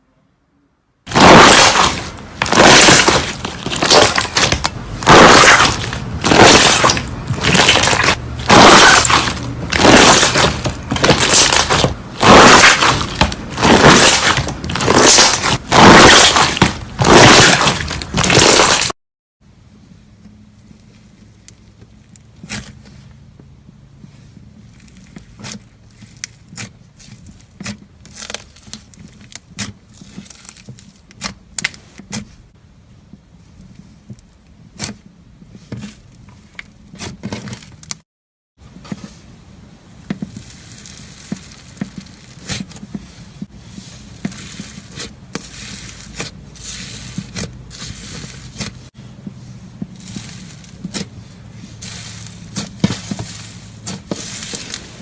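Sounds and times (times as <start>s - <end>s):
brittle crackles and crunches: 1.1s - 19.0s, 24.6s - 31.9s, 40.2s - 43.2s, 43.8s - 48.9s, 49.9s - 55.0s.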